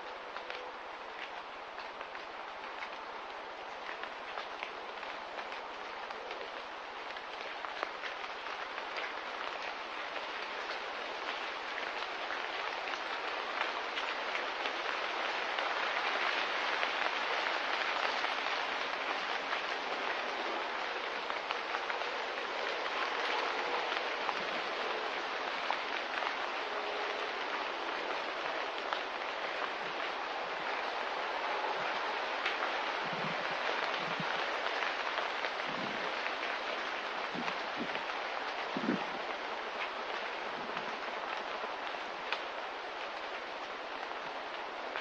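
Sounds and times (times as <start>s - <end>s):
hissing outdoor ambience: 0.0s - 45.0s.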